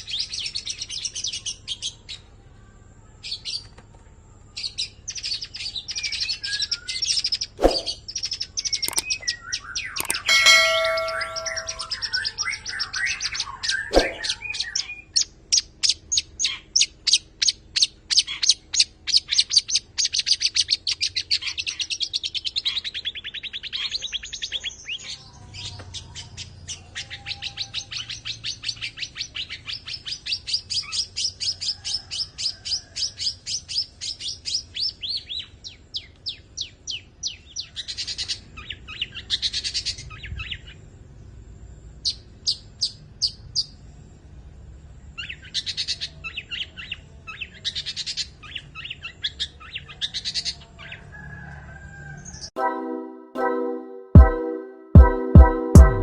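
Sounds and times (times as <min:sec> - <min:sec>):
bird chirping trill: 0:07.0 - 0:12.4, 0:13.9 - 0:14.7
harsh bird notes: 0:10.0 - 0:12.1, 0:13.9 - 0:14.5.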